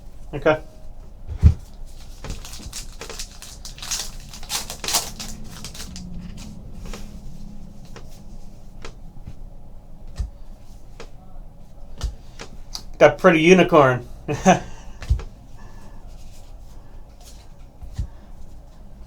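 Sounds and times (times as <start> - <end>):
cards and packaging rustling: 1.4 - 8.2.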